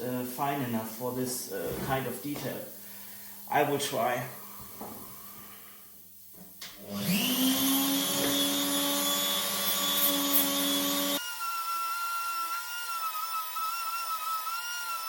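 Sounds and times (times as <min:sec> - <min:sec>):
electric grinder motor running: 0:06.8 - 0:15.0.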